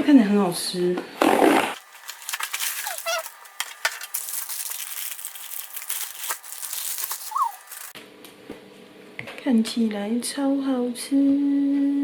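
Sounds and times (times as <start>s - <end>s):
food packaging crinkling: 1.8s - 8.0s
brief squeaks: 2.8s - 3.3s.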